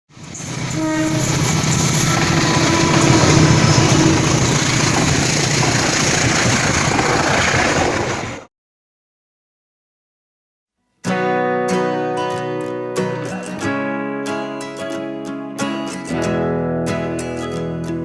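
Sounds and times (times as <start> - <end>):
train passing at speed: 0.1 - 8.5.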